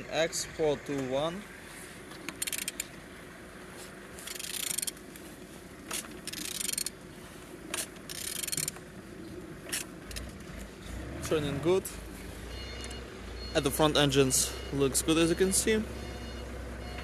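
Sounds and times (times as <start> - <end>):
wrench ratcheting on engine: 2.3 - 2.9, 4.2 - 5.0, 5.9 - 7.0, 7.7 - 8.8, 9.6 - 10.4.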